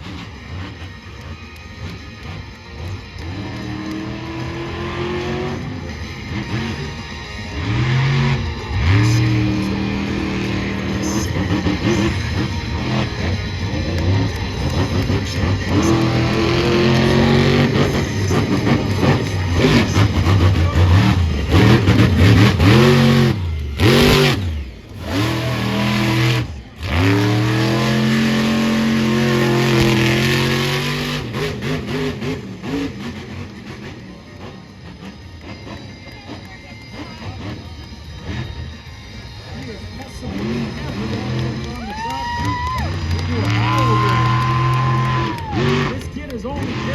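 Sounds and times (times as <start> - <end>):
monster truck engine revving: 0.0 - 46.9.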